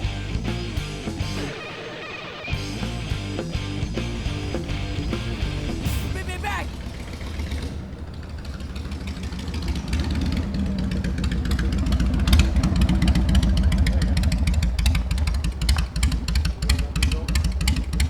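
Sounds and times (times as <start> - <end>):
motorcycle engine crackling: 6.7 - 18.0.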